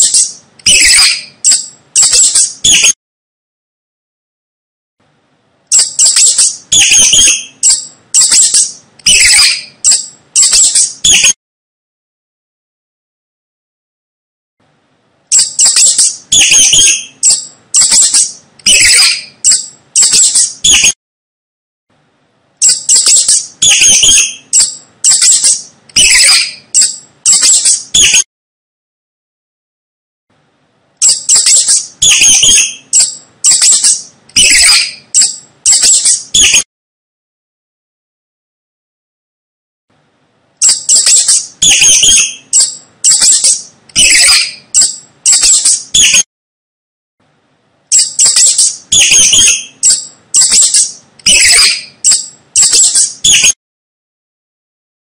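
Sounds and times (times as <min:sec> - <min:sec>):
mouse squeaking: 0:00.0 - 0:03.0, 0:05.7 - 0:11.4, 0:15.3 - 0:21.0, 0:22.6 - 0:28.3, 0:31.0 - 0:36.6, 0:40.6 - 0:46.3, 0:47.9 - 0:53.6.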